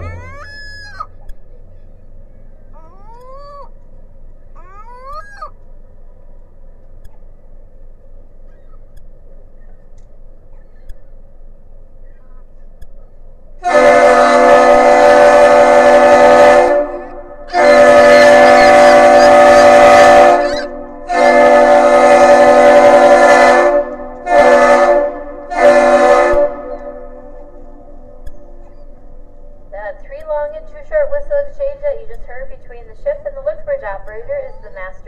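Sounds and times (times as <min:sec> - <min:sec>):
ship air horn blasts: 0:13.6 - 0:28.7.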